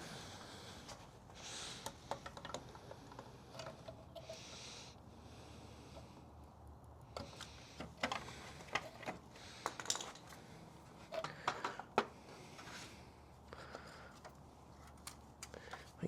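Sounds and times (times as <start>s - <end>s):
clicks and light knocks: 11.0s - 12.7s.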